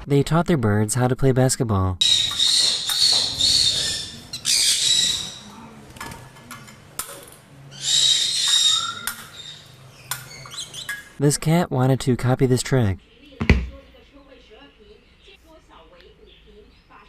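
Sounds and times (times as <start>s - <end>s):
birds screeching: 2.0s - 11.2s.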